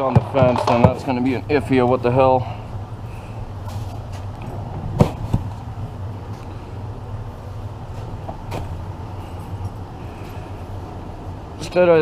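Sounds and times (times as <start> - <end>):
sharp knocks: 0.0 - 1.2
vehicle engine idling: 0.2 - 12.0.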